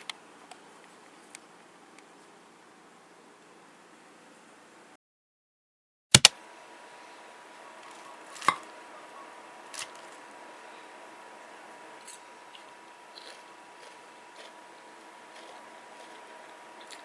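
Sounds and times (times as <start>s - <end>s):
sharp clicks: 6.2s - 6.4s
faint steady tone: 6.4s - 17.0s.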